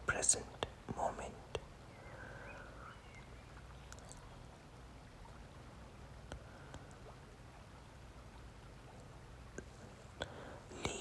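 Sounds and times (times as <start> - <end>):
stream running: 0.0 - 11.0.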